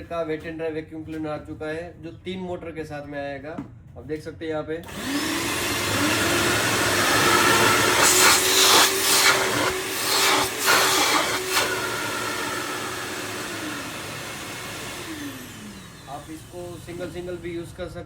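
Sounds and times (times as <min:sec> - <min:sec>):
vacuum cleaner motor whine: 0:04.8 - 0:17.9.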